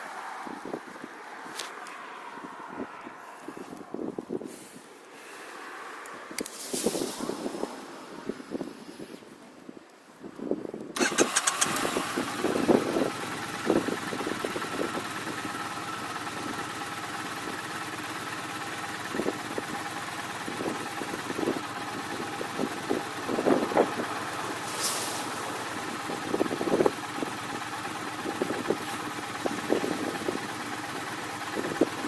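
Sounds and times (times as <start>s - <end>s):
vehicle engine clattering and idling: 11.0s - 32.0s.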